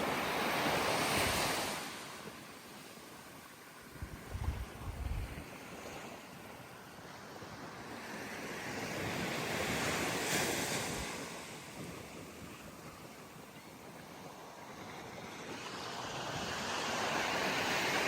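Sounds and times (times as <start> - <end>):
surf washing on sandy beach: 0.0 - 18.0
wind buffeting microphone: 3.9 - 5.5.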